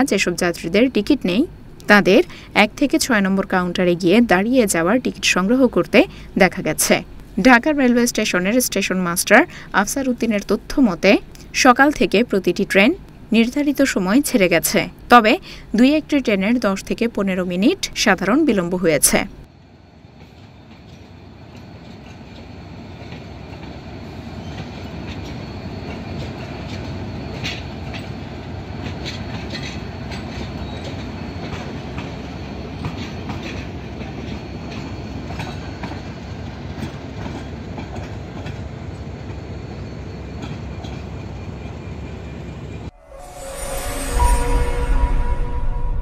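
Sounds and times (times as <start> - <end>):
train rumbling on track: 0.0 - 46.0
wheels clacking on rails: 20.2 - 42.9.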